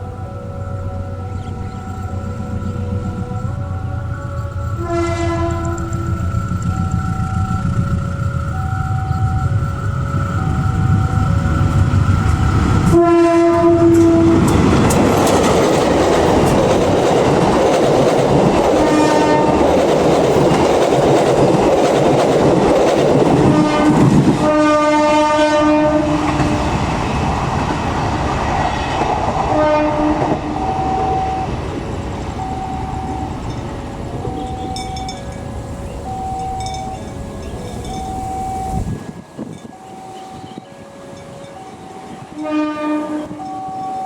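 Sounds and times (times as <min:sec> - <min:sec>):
locomotive horn: 0:00.0 - 0:06.5, 0:12.8 - 0:15.6, 0:18.6 - 0:19.8, 0:23.3 - 0:26.7, 0:28.7 - 0:31.6, 0:34.0 - 0:44.0
two-tone crossing bell: 0:00.0 - 0:12.9, 0:30.6 - 0:42.4, 0:43.3 - 0:44.0
train wheels clattering: 0:02.5 - 0:25.1.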